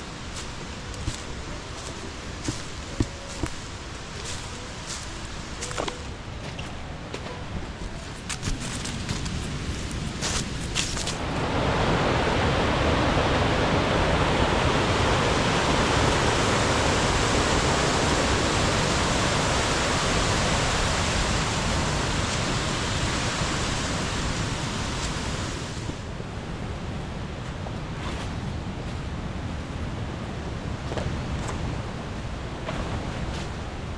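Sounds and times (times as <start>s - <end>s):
waterfall rushing: 11.1s - 26.0s.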